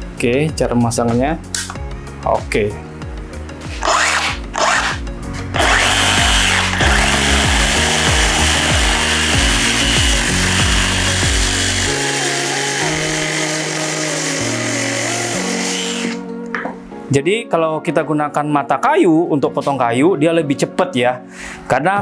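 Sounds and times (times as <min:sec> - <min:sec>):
reciprocating saw cutting wood: 0:03.7 - 0:16.2.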